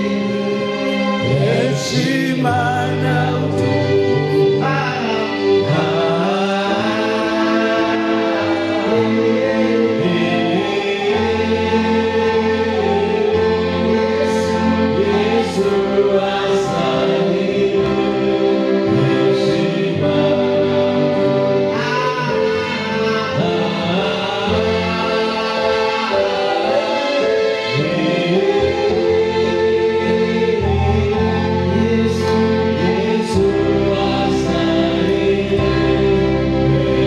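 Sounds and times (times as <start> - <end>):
choir singing gospel music: 0.0 - 37.0.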